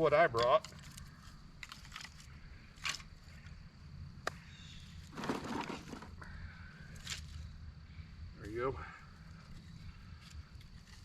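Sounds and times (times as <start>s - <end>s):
firewood crunching clatter: 0.4s - 3.1s, 5.1s - 6.2s.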